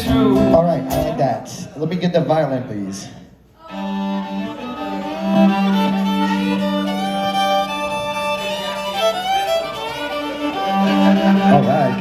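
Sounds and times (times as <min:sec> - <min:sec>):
fiddle playing through speakers: 0:03.6 - 0:12.0.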